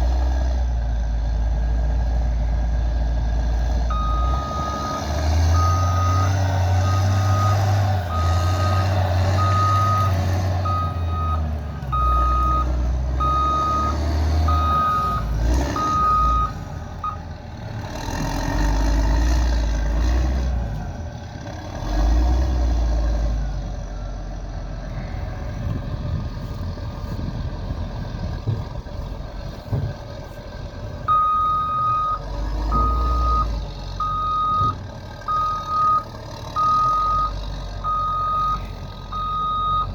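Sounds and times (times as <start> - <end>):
heavy vehicle engine running: 0.0 - 39.9
reversing alarm beeping: 3.9 - 17.2, 31.1 - 39.9.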